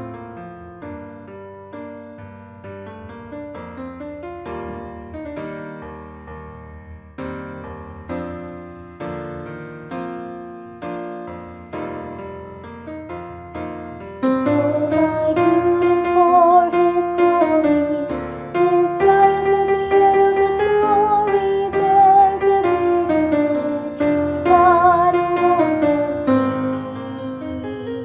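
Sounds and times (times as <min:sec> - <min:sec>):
piano accompaniment: 0:00.0 - 0:28.0
woman singing a hymn: 0:14.2 - 0:28.0.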